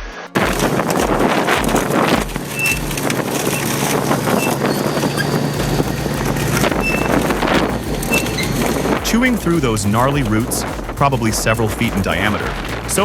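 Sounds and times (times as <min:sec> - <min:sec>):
wood cracking and grinding: 0:00.4 - 0:13.0
shredder engine under load: 0:00.5 - 0:09.0.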